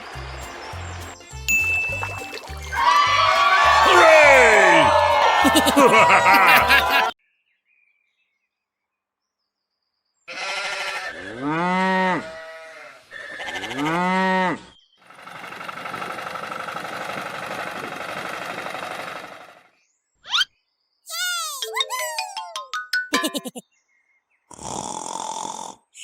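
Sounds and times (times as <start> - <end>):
steady mechanical rattle: 15.2 - 19.6.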